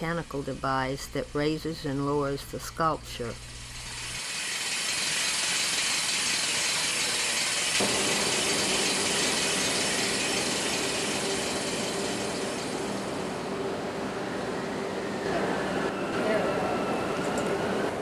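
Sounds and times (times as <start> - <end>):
steady low hum: 0.0 - 4.2, 7.6 - 16.4
ratcheting gear clatter: 4.2 - 7.8.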